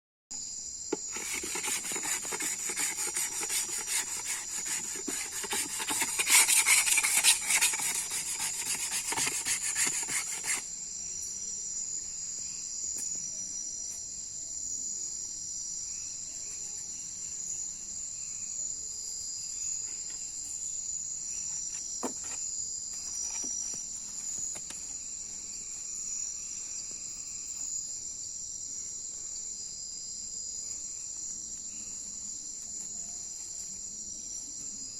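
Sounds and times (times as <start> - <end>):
crickets chirping: 0.3 - 34.9
wooden spindle rubbing on wood: 0.9 - 10.6.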